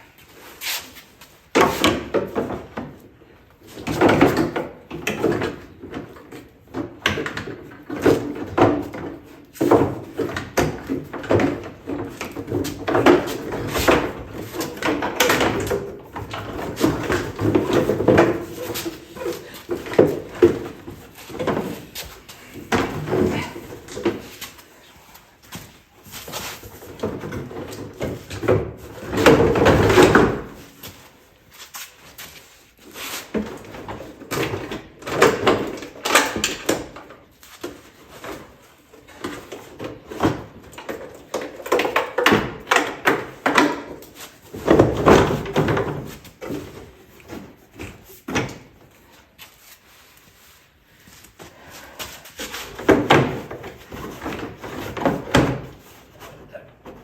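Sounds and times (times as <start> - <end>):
tools and metal parts clattering: 3.8 - 24.8, 33.5 - 48.6.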